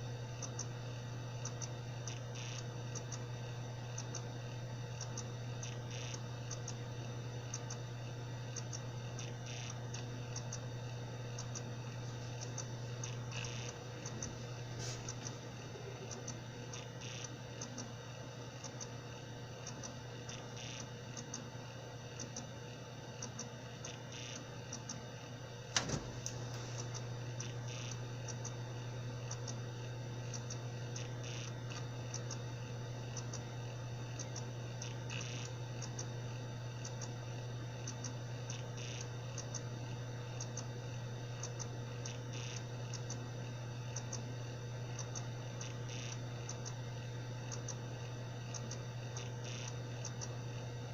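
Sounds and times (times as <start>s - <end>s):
hard drive clicking and ticking: 0.0s - 50.9s
hard drive hum: 0.0s - 50.9s.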